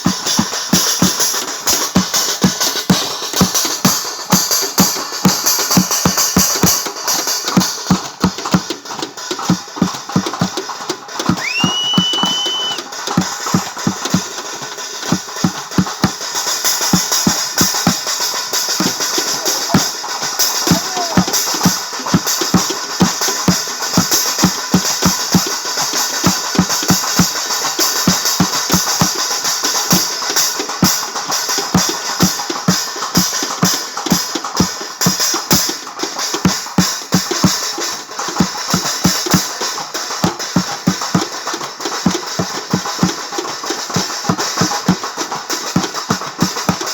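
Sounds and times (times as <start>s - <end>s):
drums beating fast: 0.0s - 46.9s
cymbals jingling and clashing: 12.8s - 36.4s.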